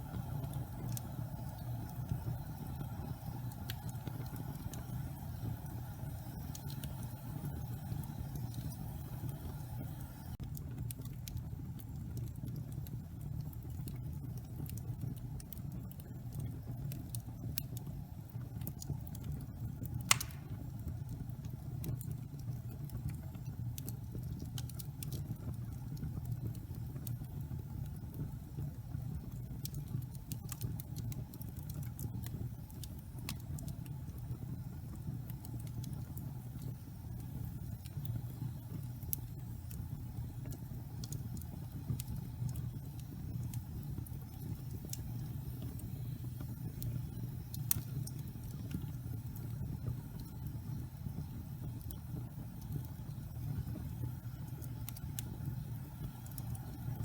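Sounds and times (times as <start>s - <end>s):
fire crackling: 0.0s - 57.0s
fire rumbling: 0.0s - 57.0s
loud fire pop: 20.1s - 20.7s.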